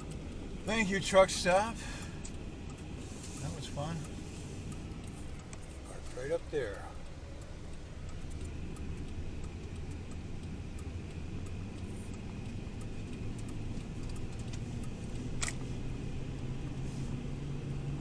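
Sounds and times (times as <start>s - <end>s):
light ticking: 0.0s - 18.0s
van engine running: 0.0s - 18.0s
sharp click: 15.4s - 15.7s.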